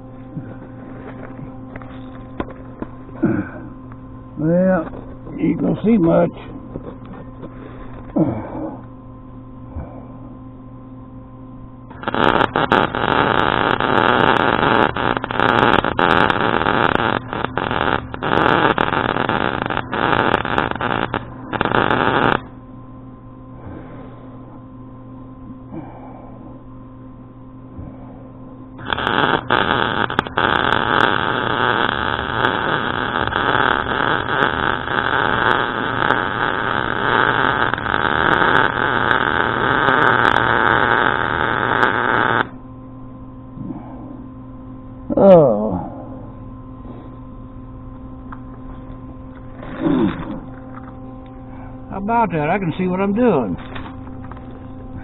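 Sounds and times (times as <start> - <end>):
welder low hum: 0.0 - 55.0
arc welding crackle: 11.9 - 22.5, 28.8 - 42.6.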